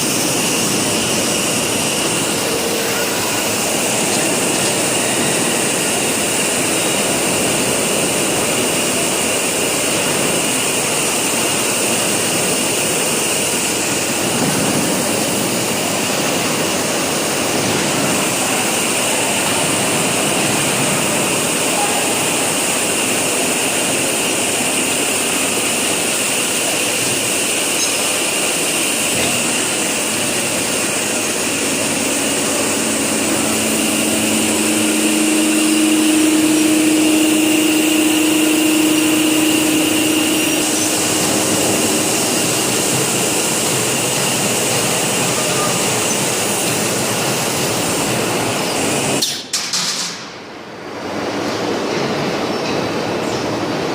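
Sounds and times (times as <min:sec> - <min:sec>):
industrial machinery hiss and hum: 0:00.0 - 0:53.9.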